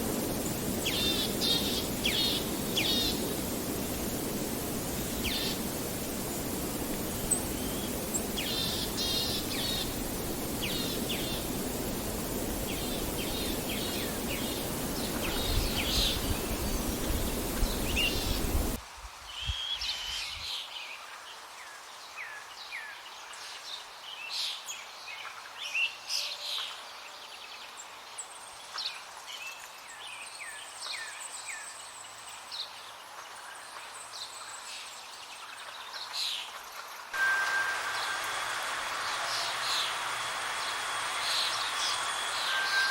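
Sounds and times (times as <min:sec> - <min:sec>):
small birds chirping: 0:00.0 - 0:18.8
steady rushing noise: 0:00.0 - 0:18.8, 0:37.2 - 0:42.9.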